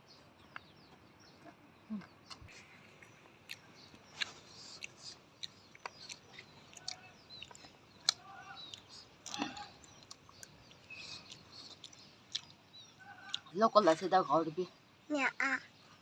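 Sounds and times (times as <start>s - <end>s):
bird chirps: 0.0s - 16.0s
chewing with wet clicks: 1.3s - 13.5s.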